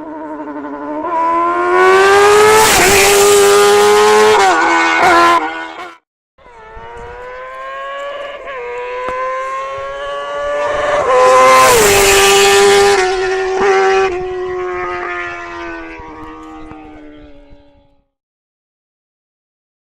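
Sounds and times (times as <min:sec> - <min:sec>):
motorcycle engine running: 0:06.4 - 0:18.1.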